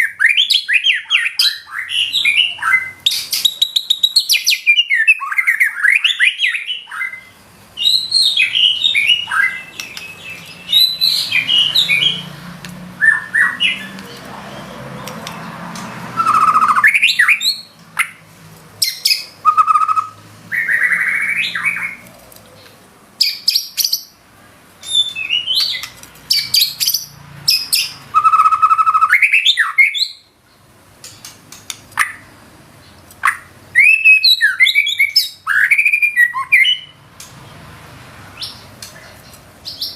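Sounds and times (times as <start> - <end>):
bird singing varied whistled notes: 0.0 - 12.4, 13.0 - 14.8, 16.2 - 18.2, 18.8 - 22.0, 24.8 - 30.3, 33.2 - 37.0.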